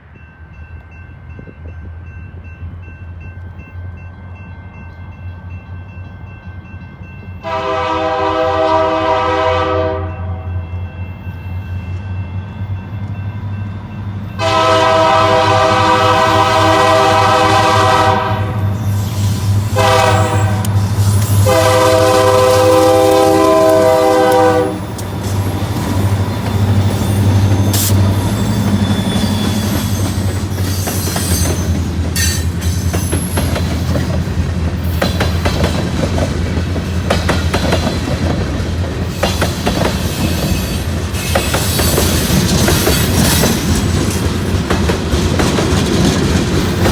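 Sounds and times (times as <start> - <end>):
locomotive air horn: 7.4 - 10.5, 14.4 - 25.2
rail clatter: 18.7 - 46.9
wheel squeal: 25.0 - 33.4.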